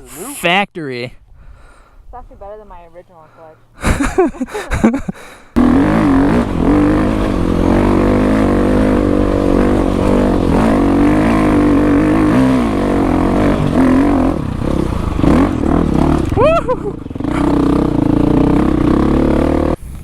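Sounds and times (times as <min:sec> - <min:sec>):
dirt bike engine revving: 0:05.6 - 0:20.0.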